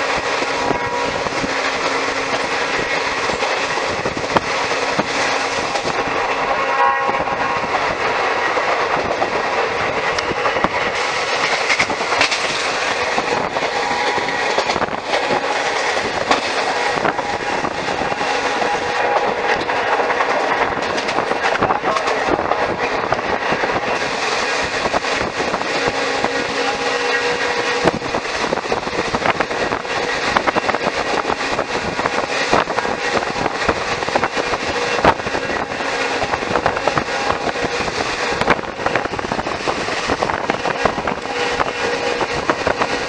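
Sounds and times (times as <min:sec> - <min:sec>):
wheels rumbling on rail: 0:00.0 - 0:43.0
wheels clicking over rail joints: 0:07.2 - 0:43.0.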